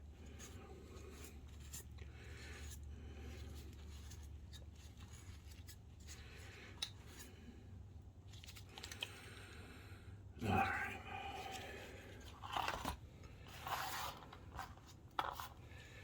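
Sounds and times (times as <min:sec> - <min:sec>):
rubbing and scratching strokes: 0:00.0 - 0:07.4, 0:11.4 - 0:16.0
steady low hum: 0:00.0 - 0:16.0.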